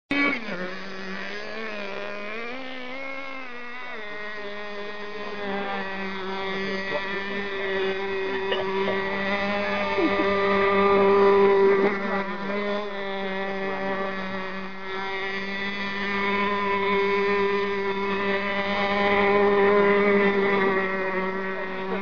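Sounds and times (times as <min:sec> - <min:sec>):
model boat engine high-pitched buzz: 0:00.1 - 0:22.0.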